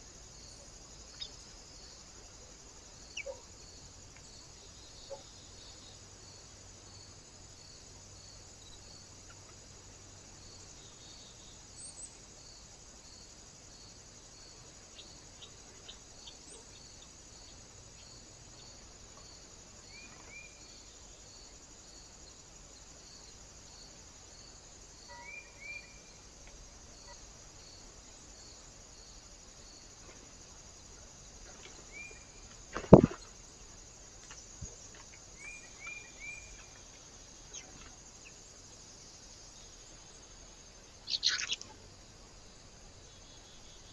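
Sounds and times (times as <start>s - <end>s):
steady hiss: 0.0s - 43.9s
small birds chirping: 3.1s - 3.5s, 40.9s - 42.2s.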